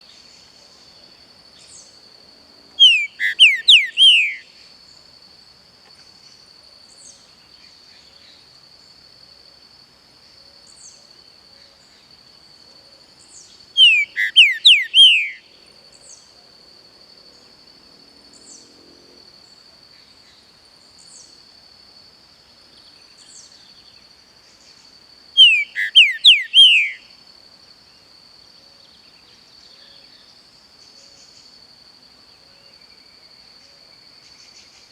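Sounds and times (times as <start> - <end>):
high insect drone: 0.0 - 34.9
faint bird calls: 2.7 - 4.6, 13.8 - 16.3, 25.4 - 27.1
bird singing whistled notes: 2.8 - 4.6, 13.3 - 15.5, 25.4 - 27.2.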